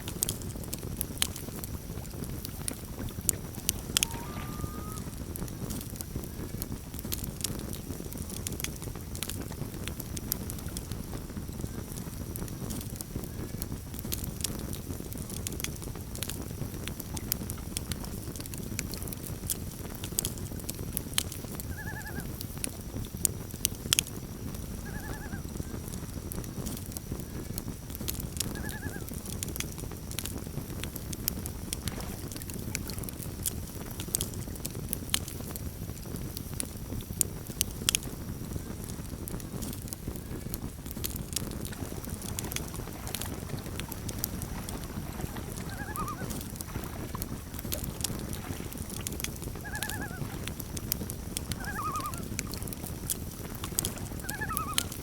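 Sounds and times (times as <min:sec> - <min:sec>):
campfire crackling and popping: 0:00.0 - 0:55.0
loon calling: 0:03.8 - 0:05.2, 0:28.6 - 0:29.1, 0:45.7 - 0:46.4, 0:49.6 - 0:50.3, 0:51.6 - 0:52.4, 0:54.2 - 0:55.0.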